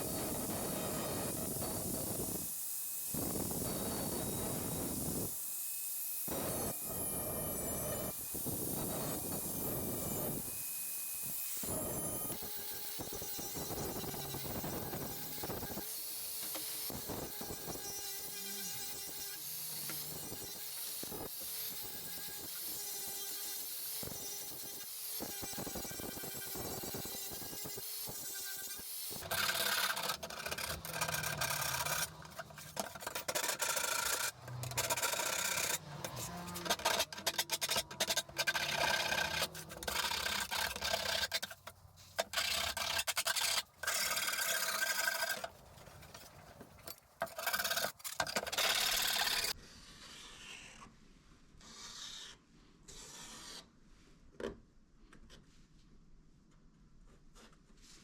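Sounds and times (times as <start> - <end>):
filing on steel sheet: 28.8 - 45.5, 51.6 - 53.7.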